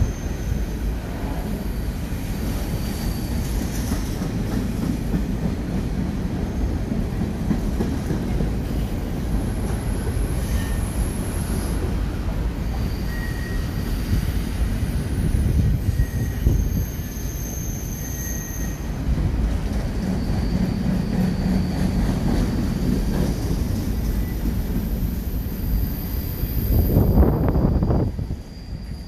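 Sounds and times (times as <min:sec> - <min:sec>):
train wheels rumbling on rail: 0:00.0 - 0:29.0
high wheel squeal: 0:01.6 - 0:04.2, 0:09.5 - 0:12.0, 0:12.6 - 0:19.0, 0:19.8 - 0:29.0.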